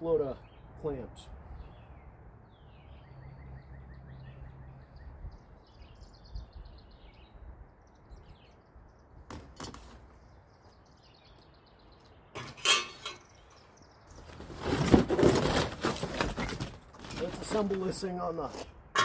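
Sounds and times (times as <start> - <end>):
small birds chirping: 0.0 - 14.9.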